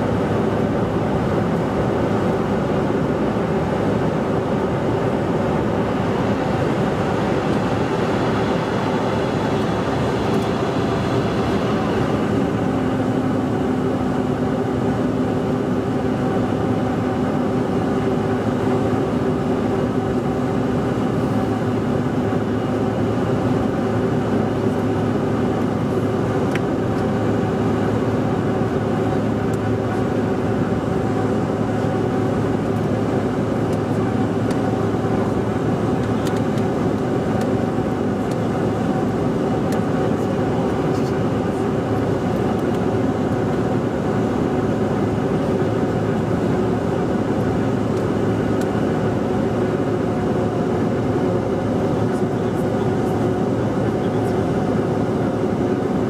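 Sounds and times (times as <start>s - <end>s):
airplane cabin airflow rush: 0.0s - 56.0s
steady jet engine tones: 4.3s - 14.4s, 20.4s - 24.4s.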